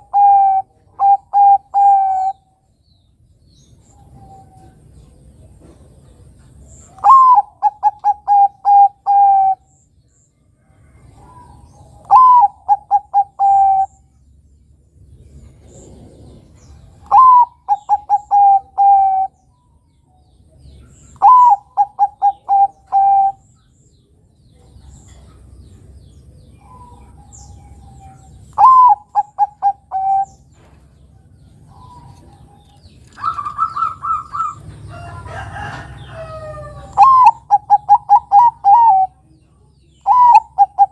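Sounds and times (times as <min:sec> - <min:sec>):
dove cooing: 0:00.0 - 0:02.4, 0:06.9 - 0:09.7, 0:11.2 - 0:14.0, 0:15.6 - 0:19.4, 0:21.0 - 0:23.5, 0:26.6 - 0:30.6, 0:31.7 - 0:39.3, 0:40.0 - 0:40.9.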